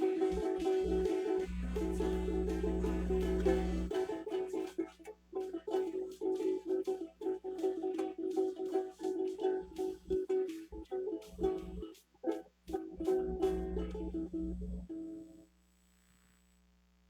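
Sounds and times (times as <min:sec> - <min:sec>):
low steady hum: 0:00.0 - 0:04.1, 0:10.0 - 0:11.9, 0:12.7 - 0:17.0
plucked acoustic stringed instrument: 0:00.0 - 0:15.3.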